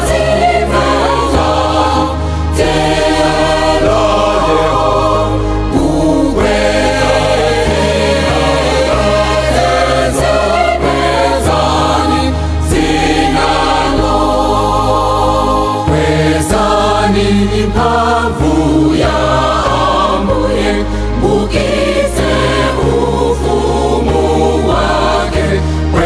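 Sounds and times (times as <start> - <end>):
gospel choir singing: 0.0 - 26.0
steady bass line: 0.0 - 26.0.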